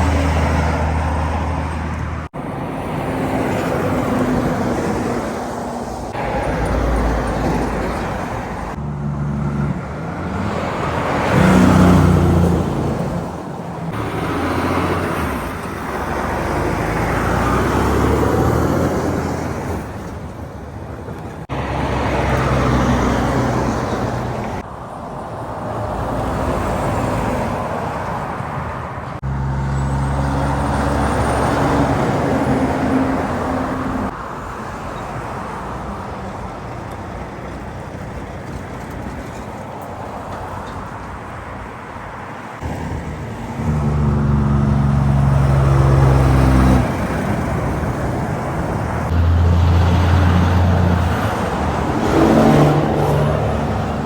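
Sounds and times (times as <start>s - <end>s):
vehicles passing by: 0.0s - 54.0s.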